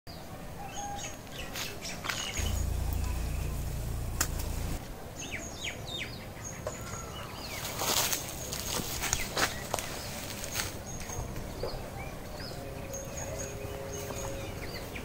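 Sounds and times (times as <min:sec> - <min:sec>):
low rumble: 0:02.4 - 0:04.9
sharp click: 0:04.1 - 0:04.6.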